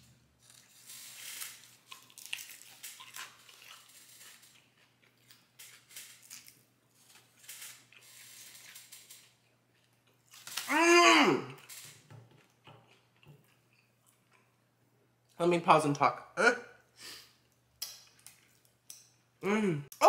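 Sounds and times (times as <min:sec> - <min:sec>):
person chewing crunchy chicken: 0:00.4 - 0:10.7.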